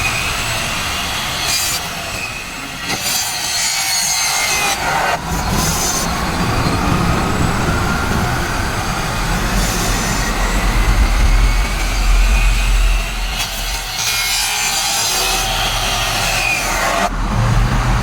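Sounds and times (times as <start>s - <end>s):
power tool cutting: 0.0s - 17.1s
low rumble: 5.2s - 14.8s.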